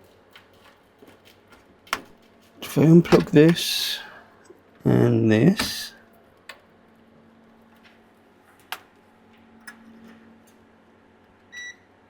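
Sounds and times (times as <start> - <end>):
faint steady hum: 2.6 - 7.7.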